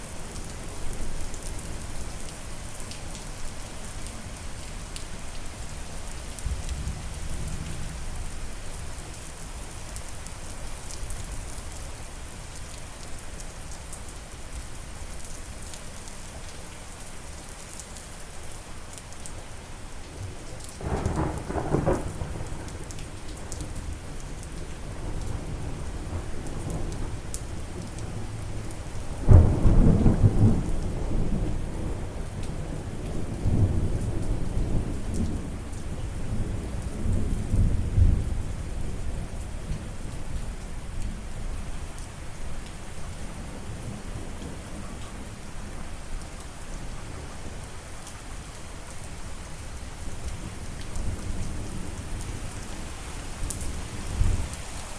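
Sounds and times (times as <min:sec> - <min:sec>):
steady rain falling: 0:00.0 - 0:54.9
thunder rumbling: 0:20.8 - 0:22.9.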